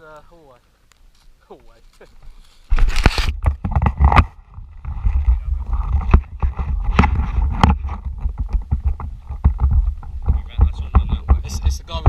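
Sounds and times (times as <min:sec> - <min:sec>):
camera handling noise: 0:02.7 - 0:04.3
sharp clicks and knocks: 0:02.7 - 0:12.0
wind rumble on microphone: 0:02.8 - 0:12.0.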